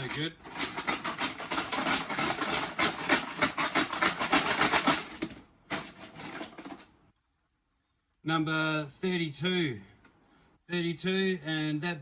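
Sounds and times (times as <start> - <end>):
wooden sticks rattling in container: 0.0 - 7.0.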